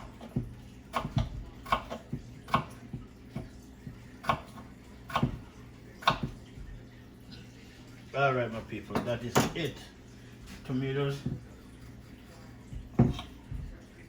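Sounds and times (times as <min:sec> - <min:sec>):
knife knocking on cutting board: 0:11.2 - 0:11.5, 0:12.7 - 0:13.8.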